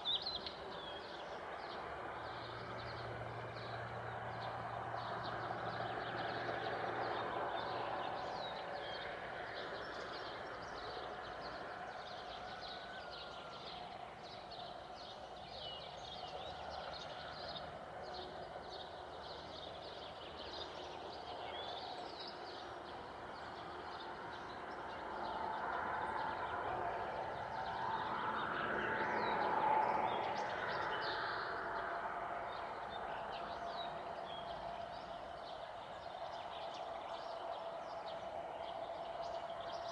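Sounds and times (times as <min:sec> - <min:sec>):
vehicle passing: 0:25.5 - 0:33.1.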